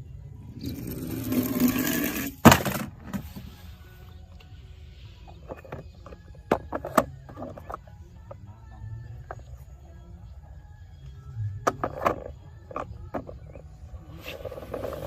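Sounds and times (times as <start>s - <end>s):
toy cars clicking and clattering: 11.6s - 13.8s.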